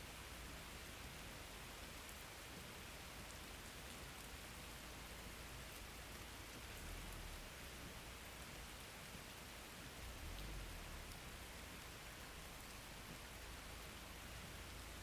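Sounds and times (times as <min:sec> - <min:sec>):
steady rain hiss: 0:00.0 - 0:15.0
raindrops pattering: 0:03.3 - 0:15.0.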